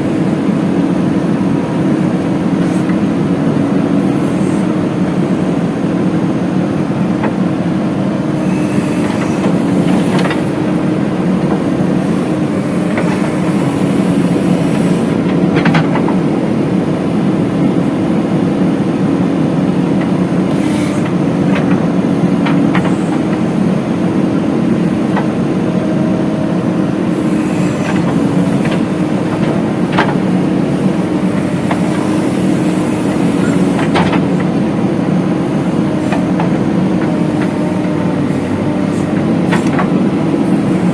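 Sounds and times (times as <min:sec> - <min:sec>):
diesel engine running: 0:00.0 - 0:40.9
loader knocking on soil: 0:08.8 - 0:16.3, 0:27.7 - 0:34.8, 0:35.8 - 0:40.9.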